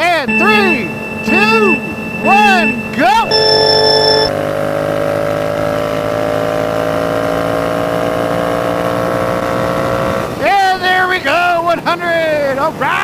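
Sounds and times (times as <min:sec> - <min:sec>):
motorcycle engine accelerating: 0:04.3 - 0:10.3.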